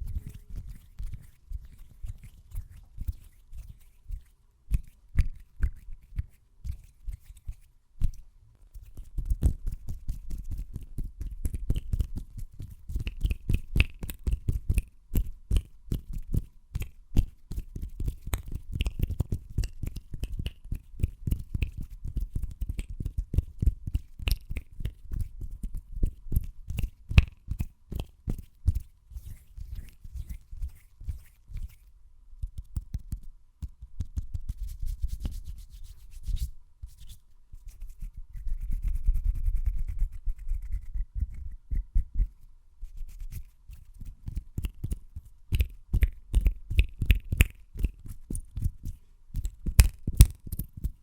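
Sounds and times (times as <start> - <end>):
hands tapping and rubbing: 43.3 - 51.0.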